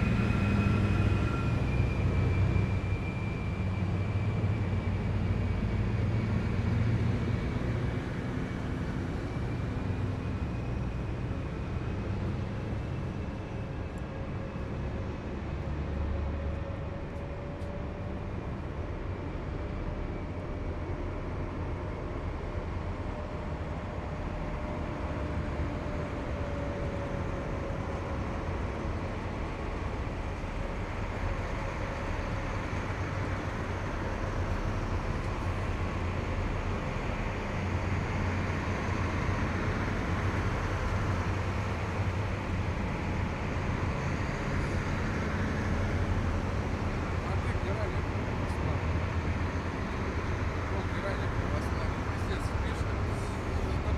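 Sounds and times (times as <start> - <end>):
drawn-out engine whine: 0.0 - 53.9
heavy vehicles rumbling past: 25.2 - 53.9.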